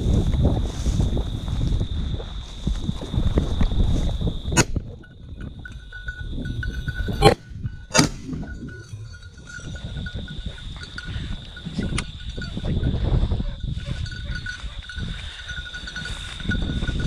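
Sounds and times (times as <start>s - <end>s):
small bell jingling: 5.0s - 17.0s.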